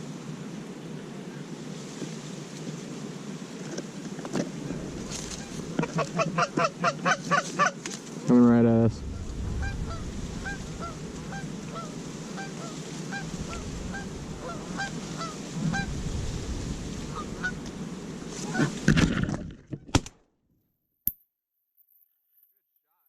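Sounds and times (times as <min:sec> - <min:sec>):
wind noise: 0:04.5 - 0:06.7, 0:08.3 - 0:19.7
geese honking: 0:04.7 - 0:07.9, 0:09.0 - 0:16.0, 0:16.9 - 0:18.9.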